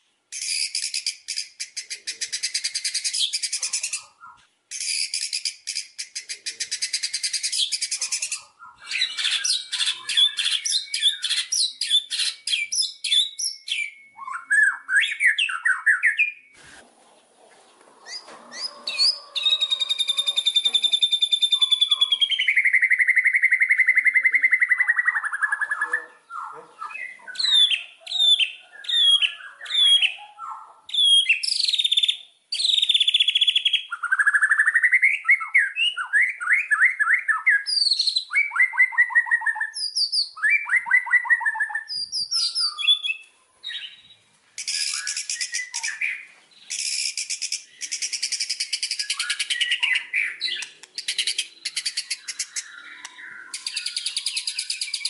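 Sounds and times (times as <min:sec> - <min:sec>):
songbird singing whistled phrases: 0:00.3 - 0:16.6, 0:18.0 - 0:55.0
bird harsh rapid chatter: 0:00.4 - 0:12.5, 0:18.0 - 0:22.7, 0:46.7 - 0:55.0.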